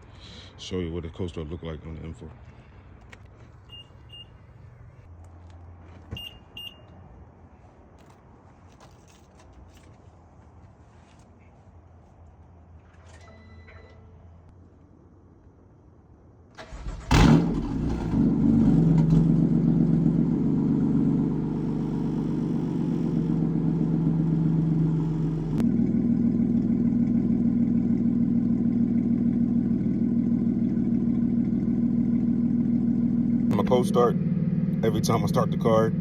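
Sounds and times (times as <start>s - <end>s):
car engine starting and idling: 16.5s - 36.0s.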